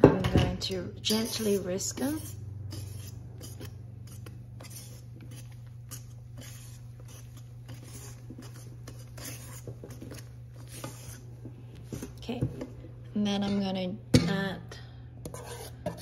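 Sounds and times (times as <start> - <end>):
whisk scraping and clicking bowl: 1.0 - 12.3, 15.2 - 16.0.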